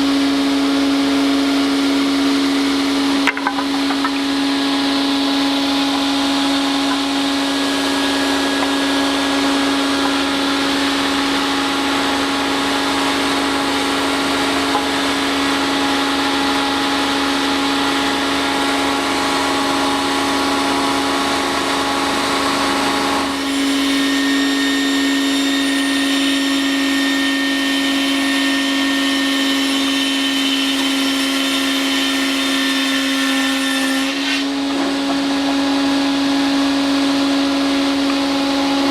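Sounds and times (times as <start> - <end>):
rip saw whining: 1.4 - 38.9.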